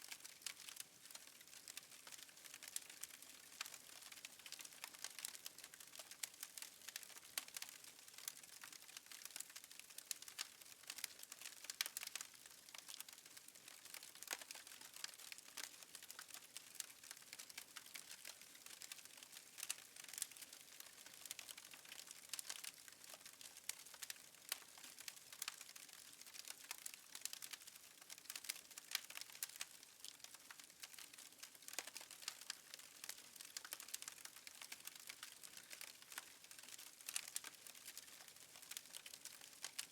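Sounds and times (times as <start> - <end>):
wood fire crackling: 0.1 - 39.9.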